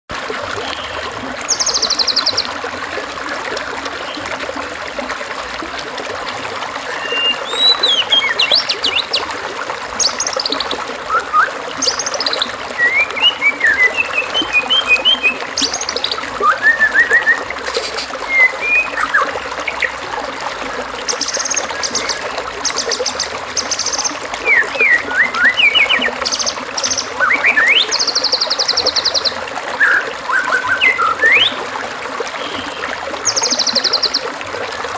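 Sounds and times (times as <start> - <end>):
trickling water: 0.1 - 34.9
songbird singing: 0.6 - 2.6, 6.9 - 20.1, 21.0 - 31.6, 32.4 - 34.3.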